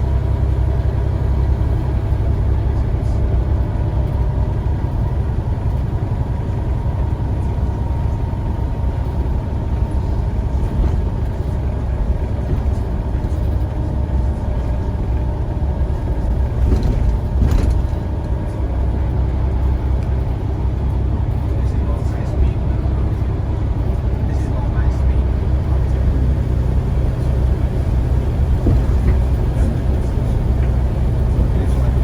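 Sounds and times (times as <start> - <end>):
bus engine and road rumble: 0.0 - 32.0
short clatter: 16.1 - 18.6.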